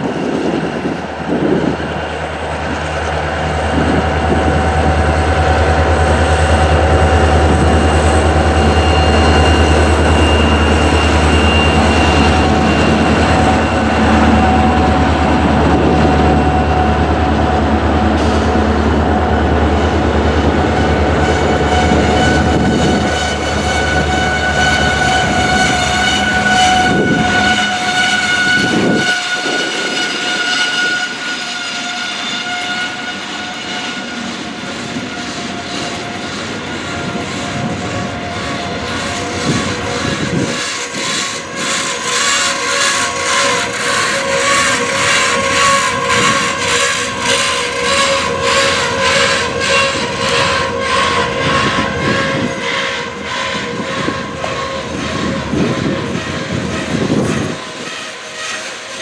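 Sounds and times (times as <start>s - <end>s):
freight train rumbling past: 0.0s - 59.0s
high-pitched ringing: 7.5s - 15.1s.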